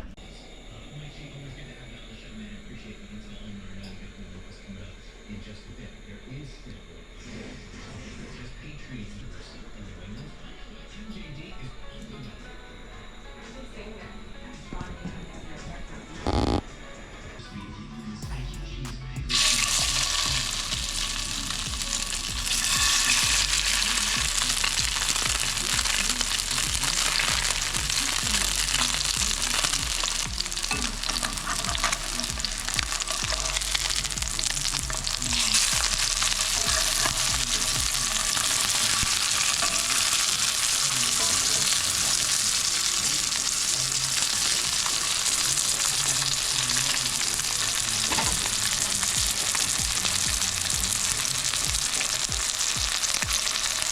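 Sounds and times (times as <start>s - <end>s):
fish sizzling in a pan: 19.3s - 53.9s.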